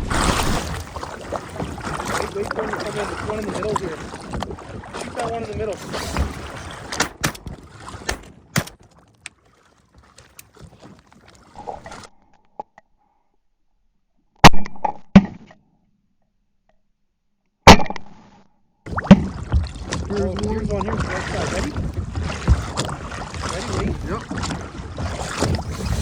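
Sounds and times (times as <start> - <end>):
choppy water: 0.0 - 12.1, 18.9 - 26.0
wind: 0.0 - 12.9
knocks against boat: 18.9 - 25.7.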